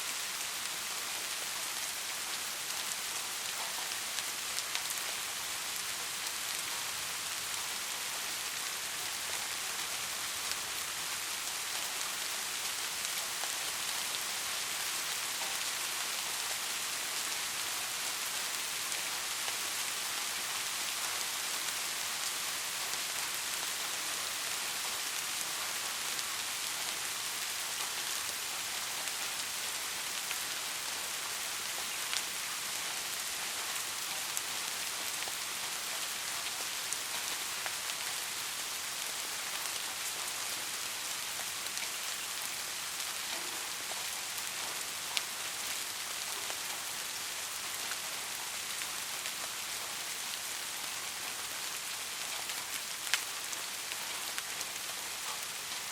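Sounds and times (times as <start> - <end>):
rain falling on foliage: 0.0 - 55.9.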